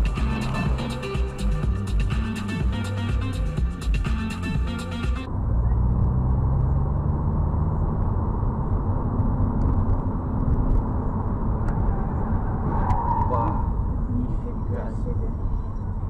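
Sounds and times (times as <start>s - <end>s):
music: 0.0s - 5.3s
vehicle engine and road rumble: 0.0s - 16.0s.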